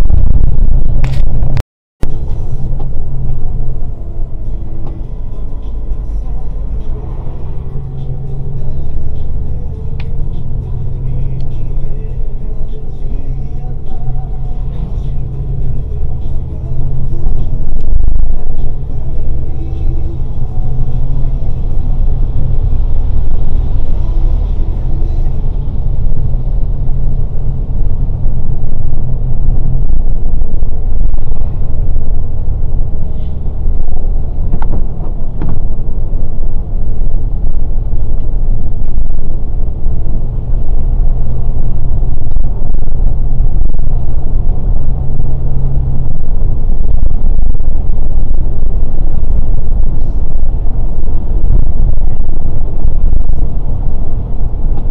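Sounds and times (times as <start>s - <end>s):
bus engine rumbling: 0.0s - 54.9s.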